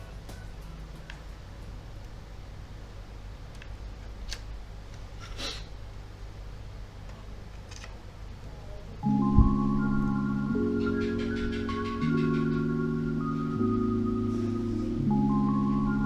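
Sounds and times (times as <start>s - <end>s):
steady low hum: 0.0s - 16.0s
music with bell-like mallet tones: 9.0s - 16.0s.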